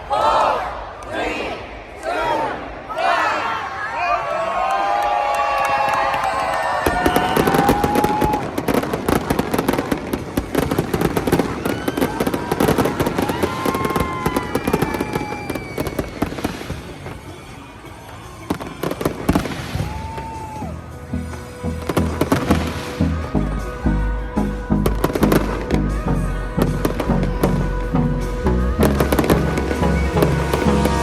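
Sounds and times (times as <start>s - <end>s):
fireworks bangs and crackles: 5.6s - 24.0s, 24.7s - 31.0s.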